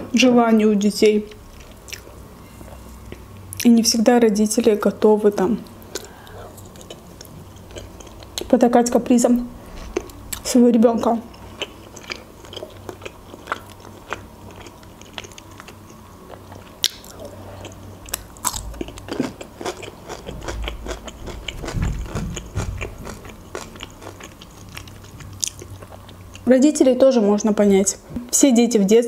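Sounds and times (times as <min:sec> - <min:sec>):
person chewing food: 0:01.4 - 0:03.4, 0:05.8 - 0:08.5, 0:09.7 - 0:10.4, 0:11.3 - 0:26.5.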